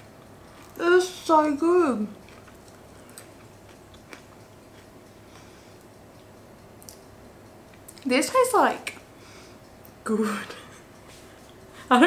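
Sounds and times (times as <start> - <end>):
faint chewing of pastry: 0.1 - 0.8, 2.0 - 8.1.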